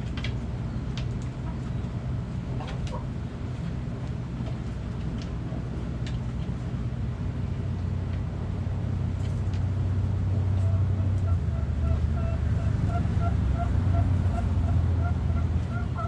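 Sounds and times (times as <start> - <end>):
low mechanical rumble: 0.0 - 16.0
chicken clucking: 10.6 - 16.0.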